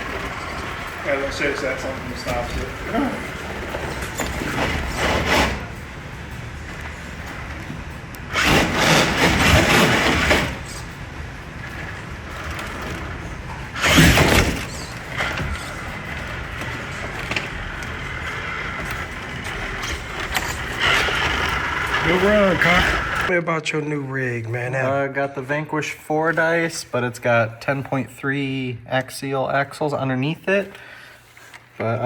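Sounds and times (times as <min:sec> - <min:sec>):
tyres scrabbling: 0:00.0 - 0:23.3
toy car motor and gears: 0:08.3 - 0:11.0, 0:11.6 - 0:23.3.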